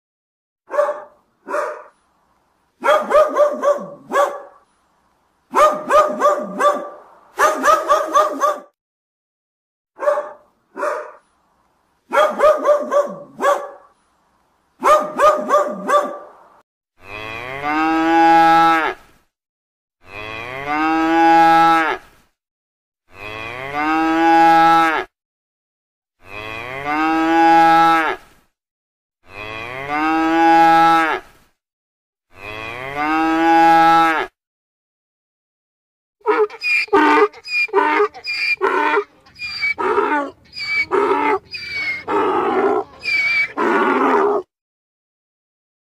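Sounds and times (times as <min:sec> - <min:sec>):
dog barking: 0:00.7 - 0:02.0, 0:02.8 - 0:04.6, 0:05.5 - 0:08.8, 0:10.0 - 0:11.2, 0:12.1 - 0:14.0, 0:14.8 - 0:16.4
cattle mooing: 0:36.3 - 0:44.4.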